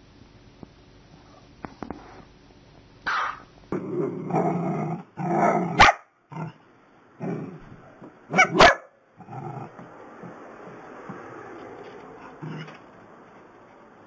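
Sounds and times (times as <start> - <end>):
small dogs barking and growling: 3.7 - 6.6, 7.2 - 10.4, 12.2 - 13.0.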